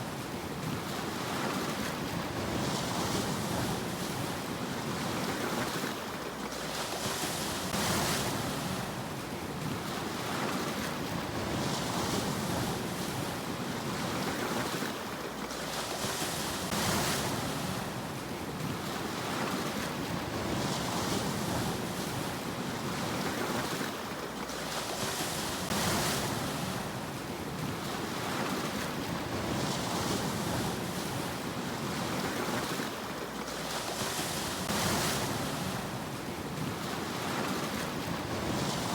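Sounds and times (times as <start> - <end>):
sea waves washing onto shore: 0.0 - 38.9.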